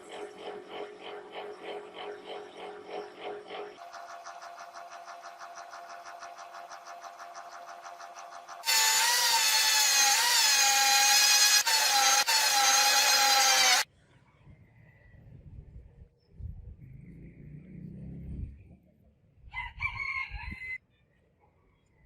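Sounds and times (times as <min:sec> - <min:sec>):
power tool whining on metal: 0:08.6 - 0:13.9.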